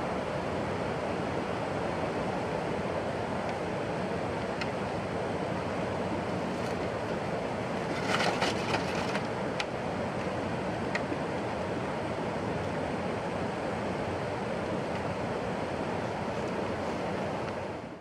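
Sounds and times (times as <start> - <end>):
crackling and rustling: 6.4 - 9.4.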